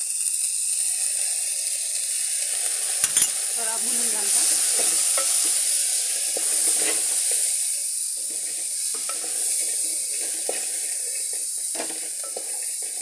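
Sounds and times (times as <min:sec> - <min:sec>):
corn sizzling in a pot: 0:00.0 - 0:13.0
spatula knocking pot: 0:03.0 - 0:03.4.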